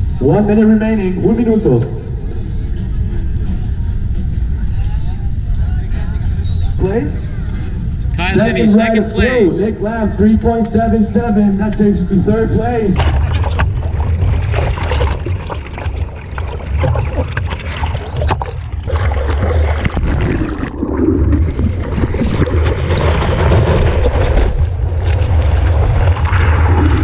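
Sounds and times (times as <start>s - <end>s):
low rumble: 0.0s - 27.0s
wind buffeting microphone: 0.0s - 27.0s
water splashing: 13.0s - 27.0s.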